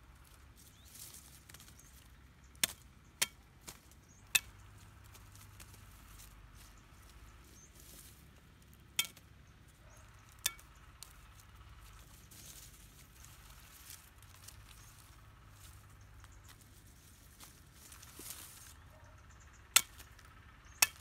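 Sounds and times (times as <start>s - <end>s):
metal tool hitting the ground: 9.0s - 9.2s.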